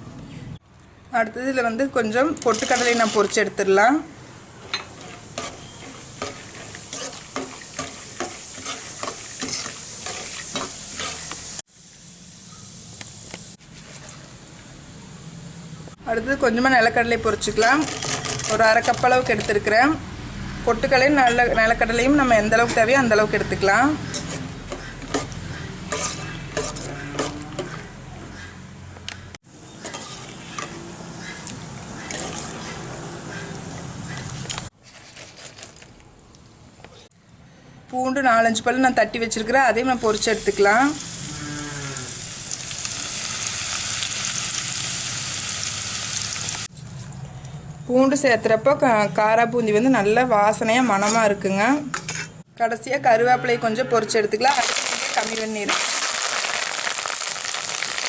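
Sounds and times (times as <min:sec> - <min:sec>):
food sizzling in hot oil: 0:02.5 - 0:03.6, 0:04.8 - 0:13.6, 0:39.8 - 0:46.7, 0:54.4 - 0:58.0
ladle scraping in pan: 0:04.7 - 0:11.4, 0:24.1 - 0:27.8, 0:29.8 - 0:30.8.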